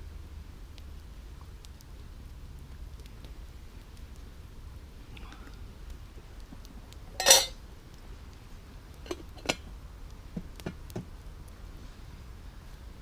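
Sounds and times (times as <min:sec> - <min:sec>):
metal cookware clattering: 0:07.2 - 0:07.6, 0:09.1 - 0:09.6.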